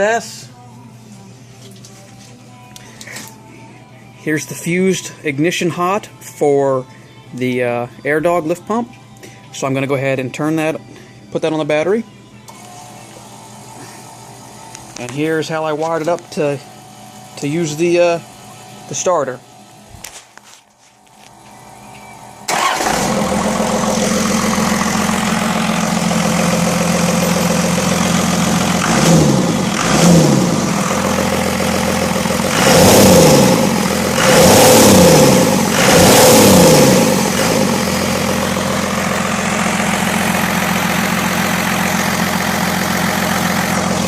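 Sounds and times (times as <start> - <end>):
diesel engine idling and revving: 22.4 - 44.0.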